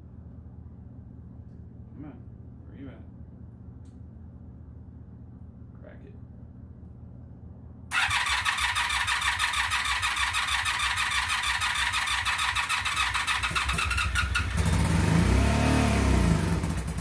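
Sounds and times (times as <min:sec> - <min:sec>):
motorcycle engine running: 0:07.9 - 0:17.0
starter motor cranking engine: 0:07.9 - 0:17.0.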